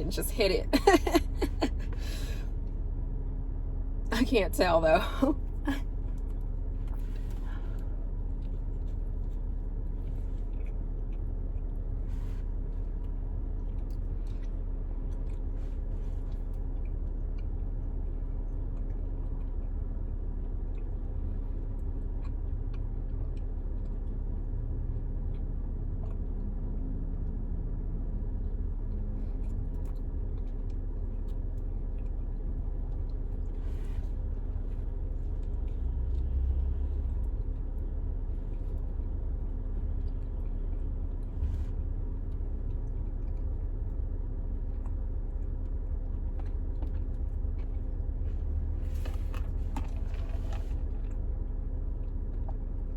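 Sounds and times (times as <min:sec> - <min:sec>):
car cabin hum: 0:00.0 - 0:17.0, 0:31.4 - 0:52.9
person chewing food: 0:05.9 - 0:52.9.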